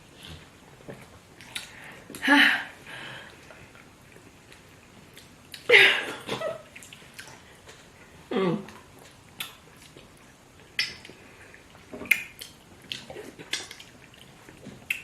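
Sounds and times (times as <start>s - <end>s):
wet eating sounds: 0.1s - 2.2s, 3.1s - 15.0s
lip smacks: 1.4s - 2.2s, 9.0s - 10.1s, 10.7s - 15.0s.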